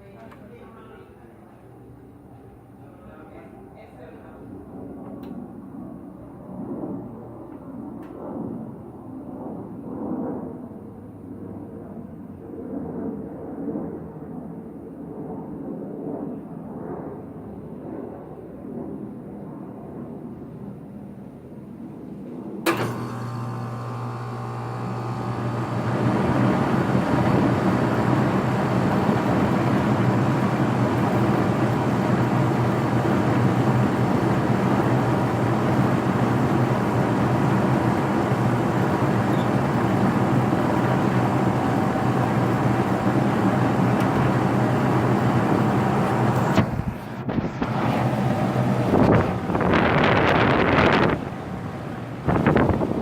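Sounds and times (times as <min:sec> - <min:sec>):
condenser fan rushing air: 0:22.6 - 0:53.0
compressor humming: 0:22.7 - 0:53.0.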